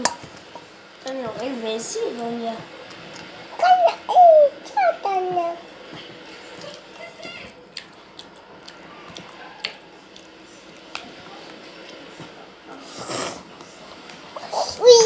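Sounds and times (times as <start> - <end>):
chewing and squishing: 5.8 - 12.4.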